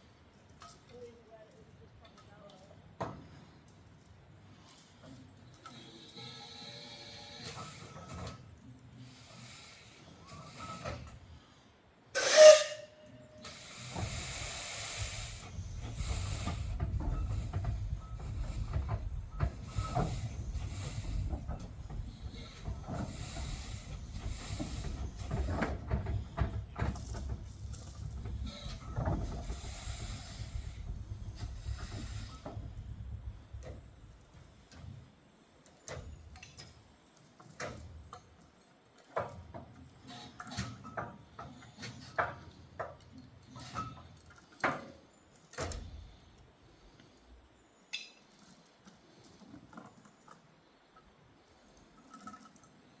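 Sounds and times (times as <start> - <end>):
train rumbling and steam hissing: 2.0 - 51.7
steam locomotive whistle: 12.2 - 13.6.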